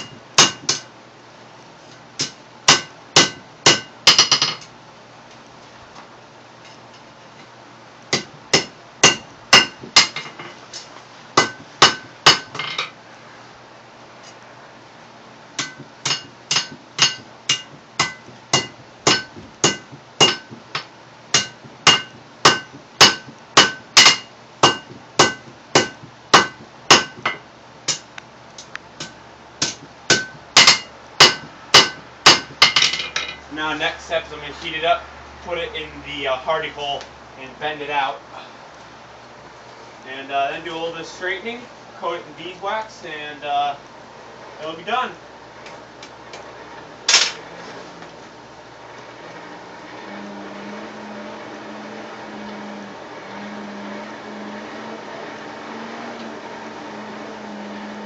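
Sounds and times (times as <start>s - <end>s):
hammer striking steel on anvil: 0.0s - 0.9s, 2.2s - 4.6s, 8.1s - 10.3s, 11.4s - 12.8s, 15.6s - 28.1s, 29.0s - 33.4s.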